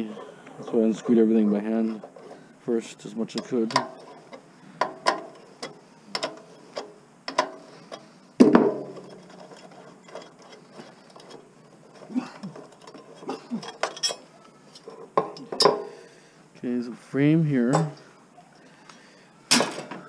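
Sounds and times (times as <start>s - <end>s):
tools and metal parts clicking: 3.2s - 8.2s, 8.8s - 15.9s.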